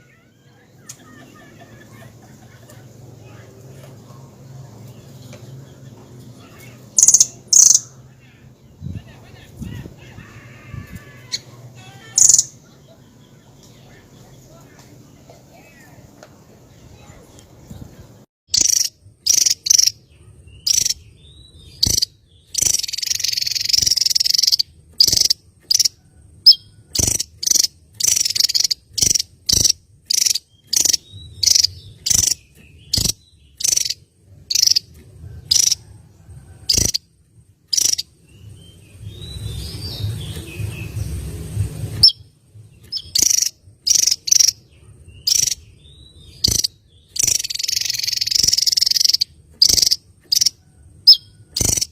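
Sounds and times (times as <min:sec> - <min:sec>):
songbird chips and trills: 0:05.0 - 0:07.9, 0:18.5 - 0:35.8, 0:36.7 - 0:37.0, 0:37.7 - 0:41.0, 0:42.0 - 0:51.9
insect-like trilling: 0:07.0 - 0:07.8, 0:12.2 - 0:12.5, 0:18.6 - 0:19.9, 0:21.8 - 0:32.4, 0:33.0 - 0:34.8, 0:35.5 - 0:35.8, 0:36.7 - 0:37.0, 0:37.7 - 0:38.0, 0:43.0 - 0:44.6, 0:45.3 - 0:45.6, 0:46.4 - 0:51.9.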